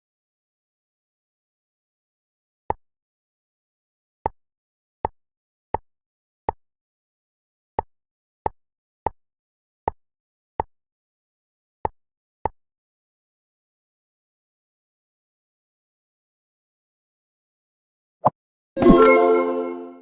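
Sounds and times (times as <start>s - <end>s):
game pop sound effect: 18.8s - 20.0s.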